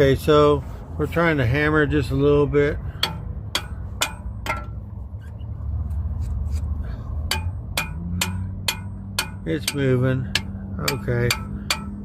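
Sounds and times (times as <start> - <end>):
low steady rumble: 0.0 - 12.0
hammer striking metal: 2.9 - 4.9, 7.2 - 12.0.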